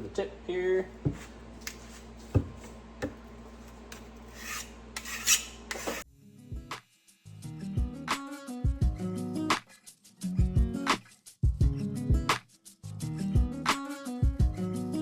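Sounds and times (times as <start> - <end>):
file scraping steel bar: 3.9 - 6.0
music: 6.1 - 15.0.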